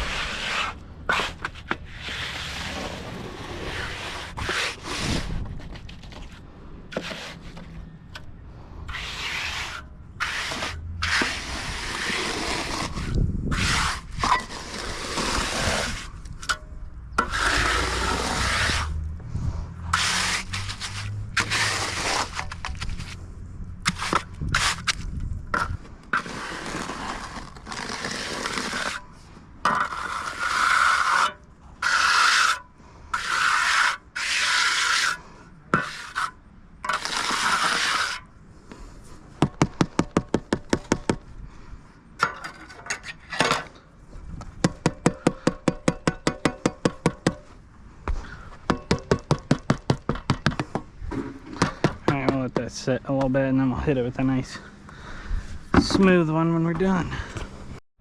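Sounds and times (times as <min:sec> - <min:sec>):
trowel scraping wet concrete: 0:00.0 - 0:07.8, 0:08.9 - 0:16.6, 0:17.2 - 0:19.0, 0:19.8 - 0:23.2, 0:23.8 - 0:38.9.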